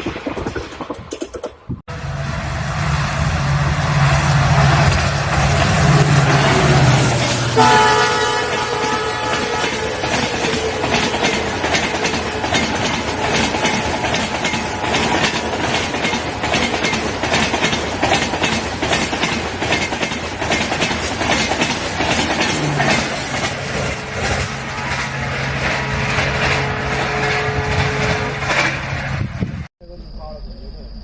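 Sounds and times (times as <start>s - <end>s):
train wheels clattering: 0.0s - 1.8s, 4.7s - 29.1s
train horn: 1.9s - 12.4s, 23.9s - 28.8s.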